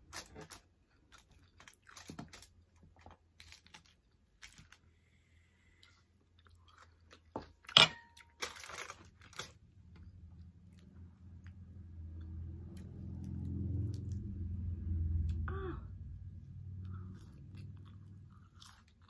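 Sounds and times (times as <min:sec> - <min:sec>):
mouth chewing crunchy chips: 0:00.0 - 0:05.1, 0:16.8 - 0:19.0.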